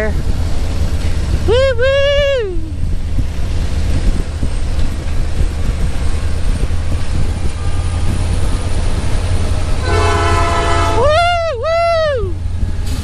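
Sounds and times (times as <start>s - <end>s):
motorcycle engine rumble: 0.0s - 13.0s
wind noise: 0.0s - 13.0s
train horn: 9.6s - 11.4s.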